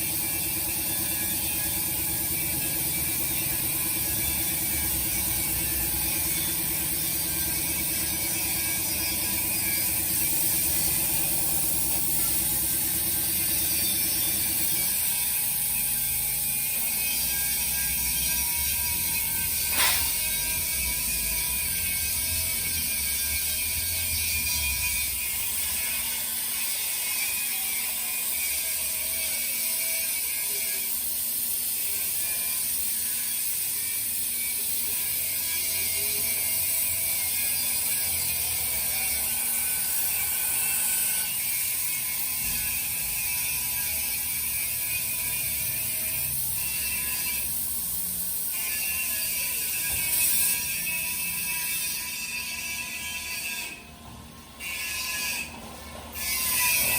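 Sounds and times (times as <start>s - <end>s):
plasma cutter high hiss: 6.4s - 15.6s, 19.5s - 20.4s, 30.0s - 35.2s, 46.2s - 48.8s.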